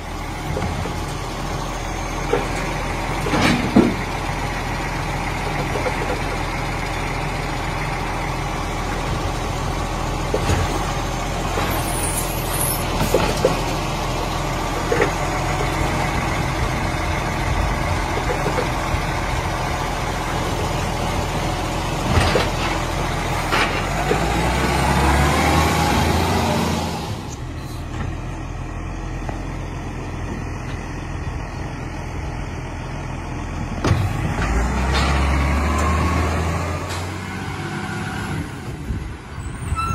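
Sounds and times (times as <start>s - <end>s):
garbage truck running: 0.0s - 39.9s
clanks and knocks: 2.3s - 4.1s, 18.1s - 18.8s.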